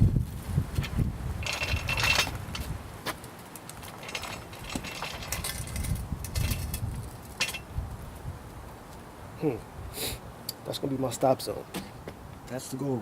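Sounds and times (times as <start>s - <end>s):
wind buffeting microphone: 0.0s - 3.1s, 3.9s - 10.0s
motorcycle rolling at low speed: 0.0s - 9.1s
clicks and rattles: 0.8s - 2.7s, 3.5s - 7.7s.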